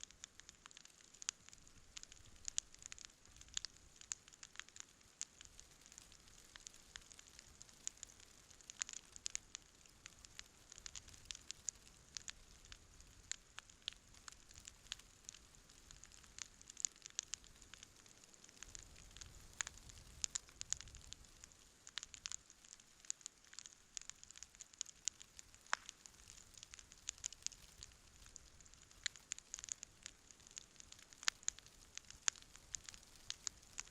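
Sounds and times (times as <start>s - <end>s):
campfire crackling and popping: 0.0s - 33.9s
faint hiss of burning: 0.0s - 33.9s.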